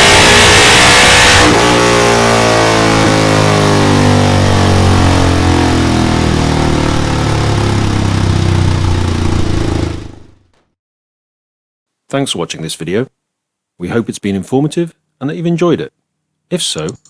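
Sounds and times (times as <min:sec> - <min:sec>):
motorcycle engine revving and winding down: 0:00.0 - 0:10.6.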